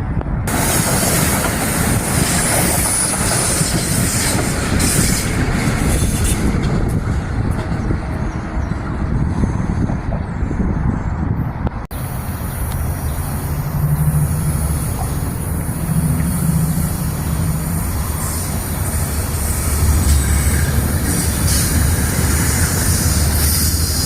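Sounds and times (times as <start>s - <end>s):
train wheels rumbling on rail: 0.0s - 24.0s
high hiss: 12.0s - 24.0s.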